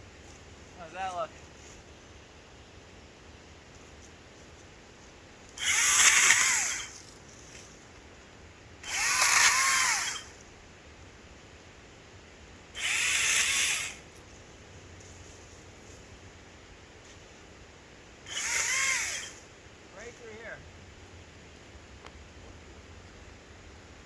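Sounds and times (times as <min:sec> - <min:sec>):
electric chainsaw motor whine: 0:05.5 - 0:07.2, 0:08.8 - 0:10.4, 0:12.8 - 0:14.1, 0:18.3 - 0:19.5.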